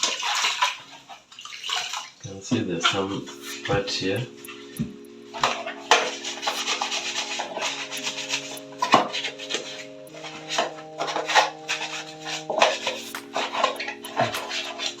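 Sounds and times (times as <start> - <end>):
music of sustained chords: 3.0 - 15.0.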